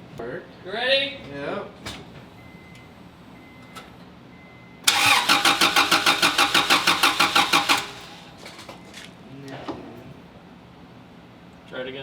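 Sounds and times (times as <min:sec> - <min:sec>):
car starter cranking engine: 0:04.8 - 0:08.9.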